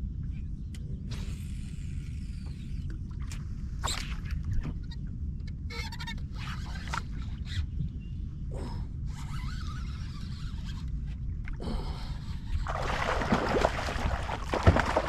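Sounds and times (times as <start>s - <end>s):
steady low rumble: 0.0s - 15.0s
water sloshing and splashing: 12.6s - 15.0s.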